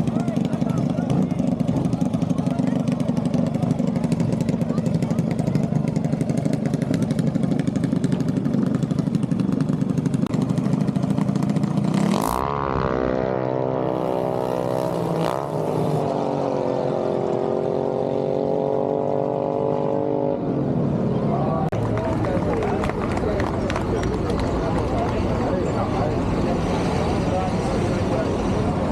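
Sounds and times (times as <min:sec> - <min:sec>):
mini bike engine revving: 0:00.2 - 0:20.0.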